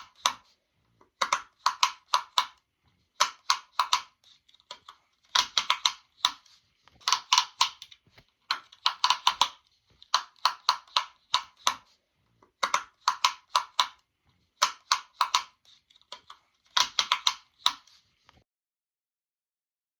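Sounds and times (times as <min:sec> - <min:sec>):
sharp popping clicks: 0:03.2 - 0:06.4, 0:07.0 - 0:11.8.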